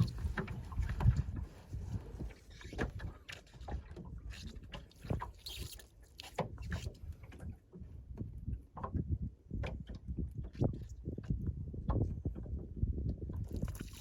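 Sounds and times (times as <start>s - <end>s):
wind rumble on microphone: 0.0s - 5.8s, 6.4s - 14.0s
water slapping against hull: 0.0s - 14.0s.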